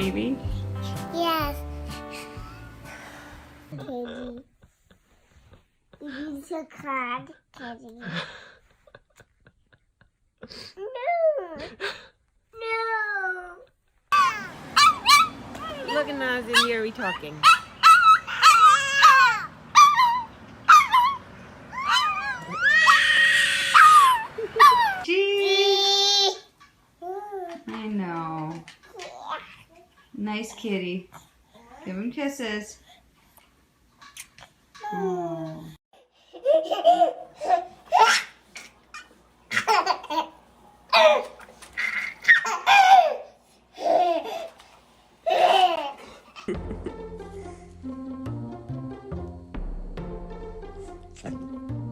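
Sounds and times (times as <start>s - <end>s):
baby laughing: 14.1s - 25.0s, 36.4s - 44.6s, 45.2s - 46.7s
dog whining and yipping: 14.2s - 25.0s.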